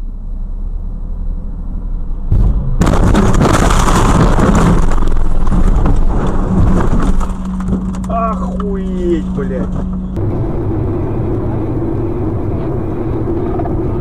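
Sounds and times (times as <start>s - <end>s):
car driving rumble: 0.0s - 14.0s
vehicle crash crunching and scraping: 2.3s - 10.2s.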